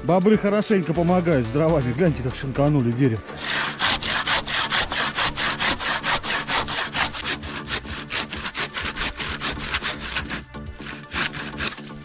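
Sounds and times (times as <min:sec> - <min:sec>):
background music: 0:00.0 - 0:12.0
hand saw cutting wood: 0:03.2 - 0:12.0.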